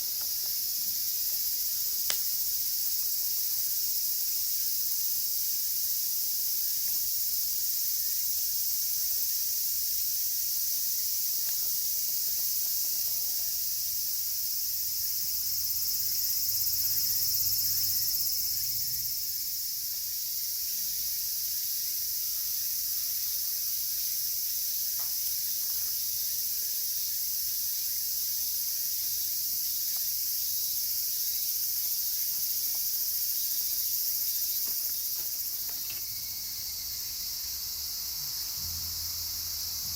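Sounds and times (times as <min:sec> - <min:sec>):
cicadas chorus: 0:00.0 - 0:39.9
campfire crackles: 0:00.1 - 0:03.0.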